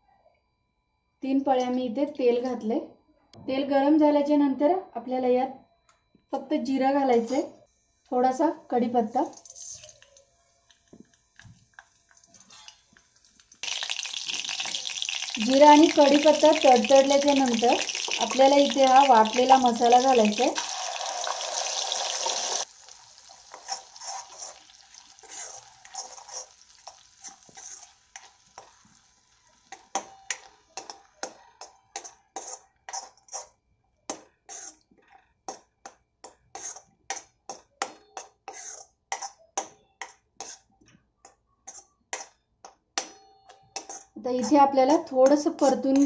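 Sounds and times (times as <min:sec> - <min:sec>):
paste sizzling in hot oil: 0:10.6 - 0:33.5, 0:34.5 - 0:34.8
steel ladle scraping pan: 0:12.1 - 0:12.9, 0:13.7 - 0:28.9, 0:34.5 - 0:34.8, 0:36.5 - 0:37.2, 0:38.4 - 0:39.4, 0:43.8 - 0:44.6.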